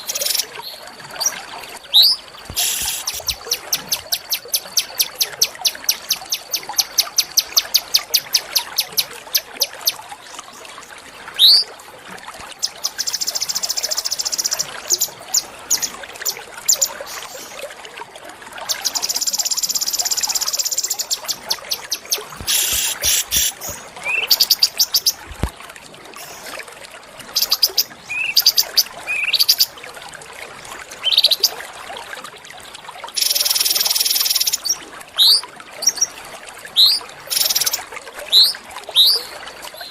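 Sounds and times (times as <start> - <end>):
songbirds singing: 0.0 - 10.0, 18.7 - 25.2, 27.4 - 29.7
buzzy bird trills: 2.0 - 9.4, 18.7 - 25.2.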